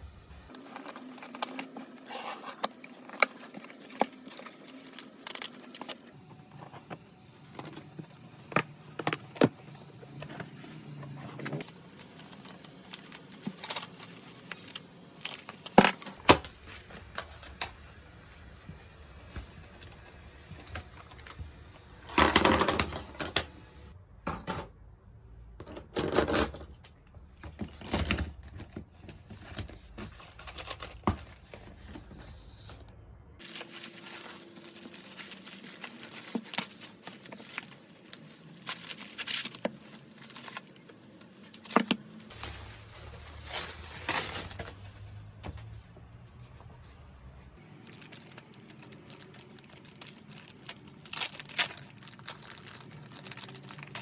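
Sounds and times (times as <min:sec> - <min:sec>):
paper rustling and tearing: 0:33.4 - 0:45.3.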